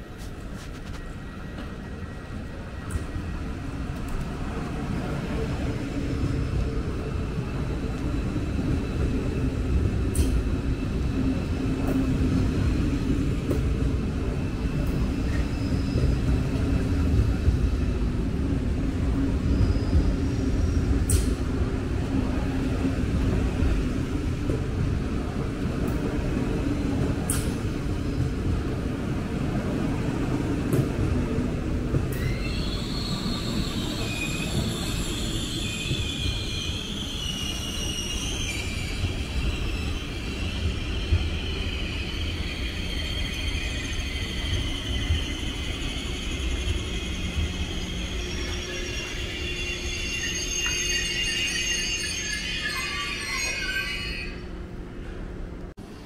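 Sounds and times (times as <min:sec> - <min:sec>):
train rumbling: 0:00.0 - 0:56.0
train wheels squealing: 0:14.3 - 0:17.4, 0:19.3 - 0:21.5, 0:32.1 - 0:54.6.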